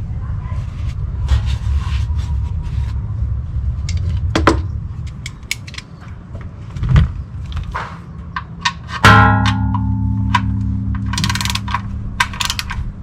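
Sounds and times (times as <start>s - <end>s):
metal tools clicking and knocking: 5.1s - 6.0s, 8.4s - 12.9s
low hum: 9.0s - 13.0s.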